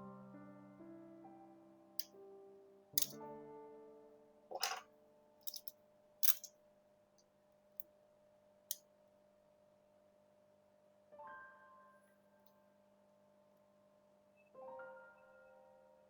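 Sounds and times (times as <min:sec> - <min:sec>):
small tools clicking and tapping: 0:04.6 - 0:04.8, 0:05.5 - 0:06.5.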